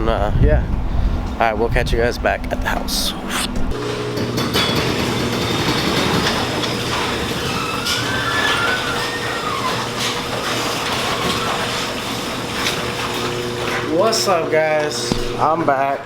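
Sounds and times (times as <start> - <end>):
faint squeaks: 7.4 - 11.8.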